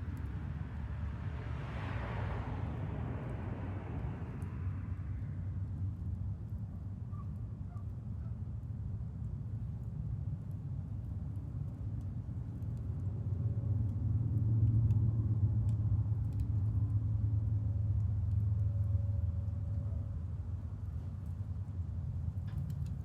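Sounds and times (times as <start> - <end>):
wood fire crackling: 20.9 - 23.0.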